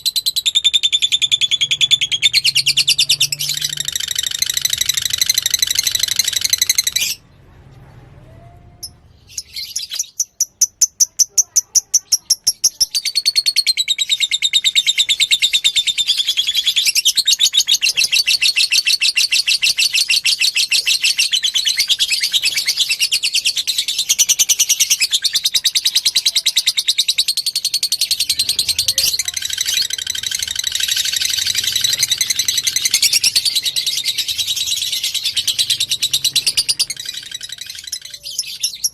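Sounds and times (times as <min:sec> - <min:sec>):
lovebird chattering trill: 0:09.4 - 0:38.9.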